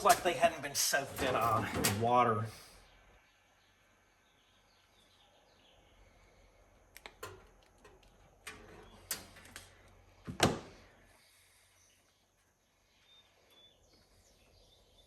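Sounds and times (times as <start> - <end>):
hand tools clicking and clunking: 0.0 - 2.2, 7.0 - 10.8.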